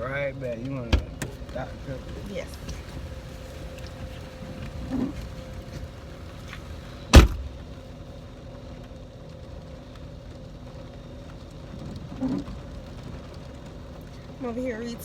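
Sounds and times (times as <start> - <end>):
steady low hum: 1.0 - 11.8
car door slamming: 6.5 - 7.8.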